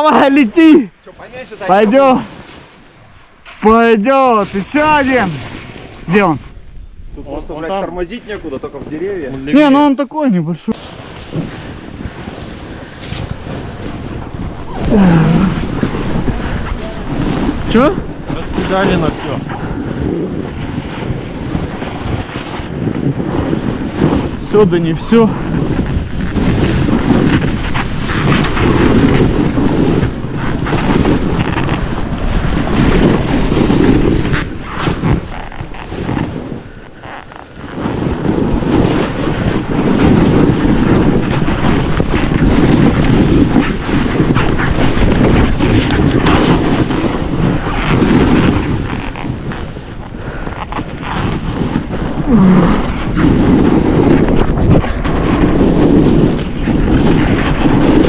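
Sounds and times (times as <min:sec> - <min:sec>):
snowboard running through snow: 0:00.0 - 0:06.9, 0:10.8 - 0:58.0
wind buffeting microphone: 0:00.0 - 0:58.0.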